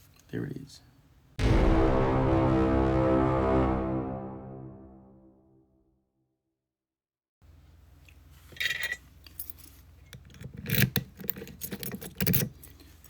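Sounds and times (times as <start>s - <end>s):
padlock metal clinks: 8.6s - 13.0s.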